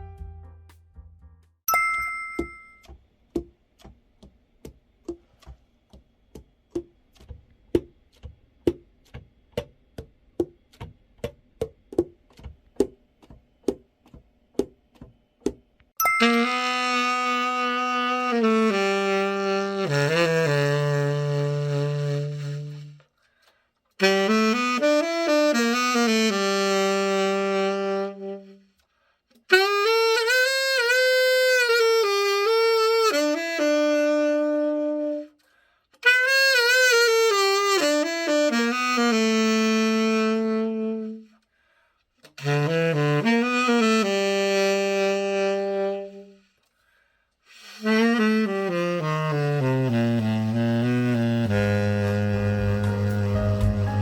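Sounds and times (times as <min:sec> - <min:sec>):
tenor saxophone slow melody: 0:16.1 - 0:23.1, 0:24.0 - 0:35.4, 0:36.0 - 0:41.4, 0:42.2 - 0:46.6, 0:47.4 - 0:54.0.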